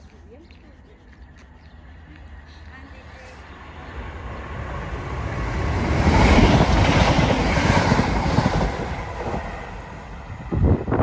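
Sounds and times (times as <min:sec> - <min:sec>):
diesel train engine: 0:01.9 - 0:11.0
train wheels clattering on rails: 0:05.0 - 0:09.7.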